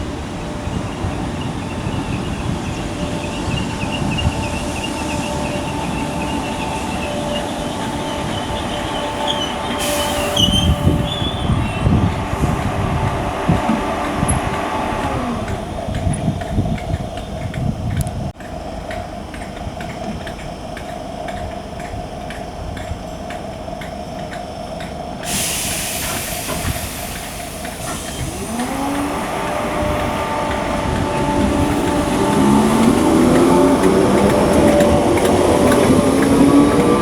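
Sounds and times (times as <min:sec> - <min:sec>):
traction motors whining: 0:00.1 - 0:17.7, 0:25.3 - 0:37.0
air hissing: 0:03.1 - 0:15.5, 0:25.2 - 0:37.0.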